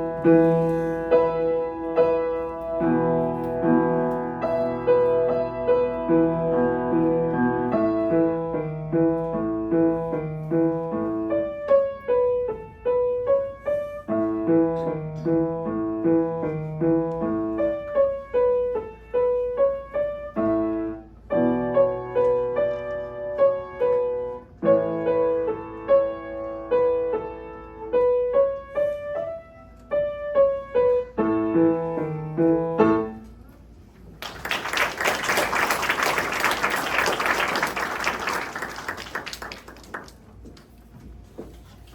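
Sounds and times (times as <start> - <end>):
solo piano piece: 0.0 - 39.7
audience applause: 34.2 - 40.3.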